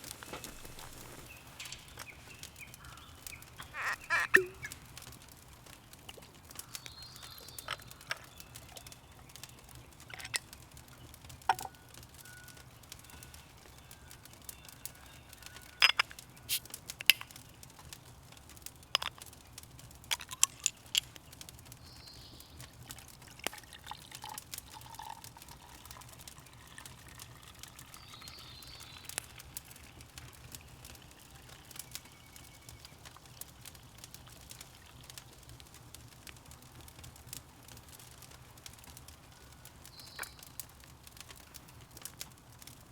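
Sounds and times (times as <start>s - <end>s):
faint bird calls: 0.0s - 5.0s
sharp clicks and snaps: 15.4s - 21.8s.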